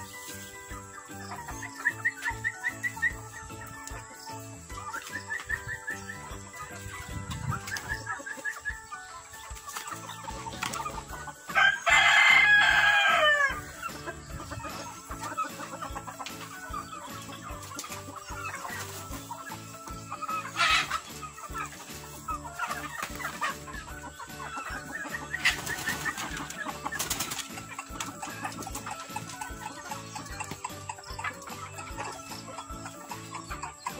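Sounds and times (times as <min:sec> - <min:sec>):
chickens clucking: 0:00.0 - 0:33.9
rooster crowing: 0:11.5 - 0:13.7.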